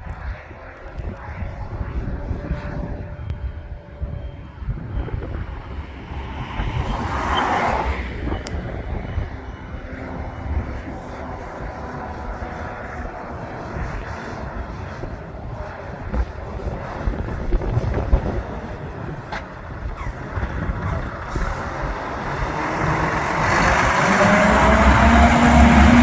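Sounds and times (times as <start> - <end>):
rising engine whine: 0.3 - 26.0
truck diesel engine passing: 18.4 - 26.0.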